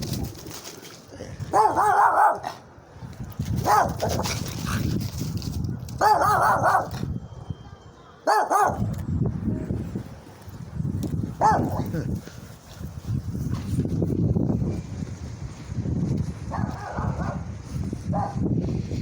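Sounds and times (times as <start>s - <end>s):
dog barking: 1.5s - 2.6s, 3.6s - 4.2s, 6.0s - 7.0s, 8.2s - 8.9s, 11.4s - 11.9s, 16.5s - 17.5s, 18.1s - 18.4s.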